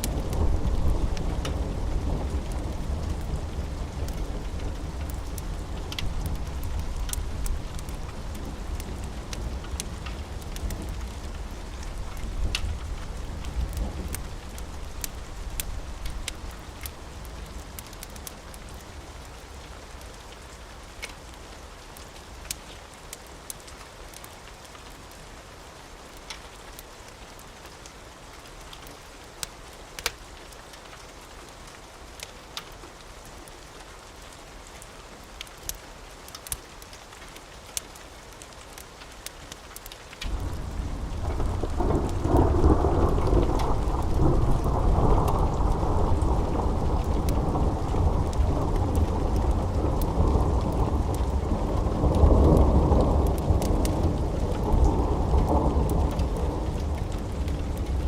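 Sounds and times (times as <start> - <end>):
steady rain: 0.0 - 58.0
thunder rumbling: 40.2 - 58.0.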